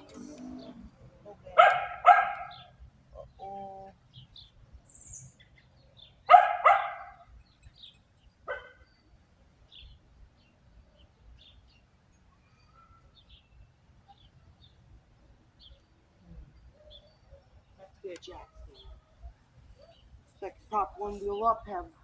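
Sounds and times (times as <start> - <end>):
faint bird chirps: 0.0 - 1.3, 10.8 - 14.8, 15.6 - 17.8
dog barking: 1.6 - 2.7, 6.3 - 7.2, 8.5 - 8.8.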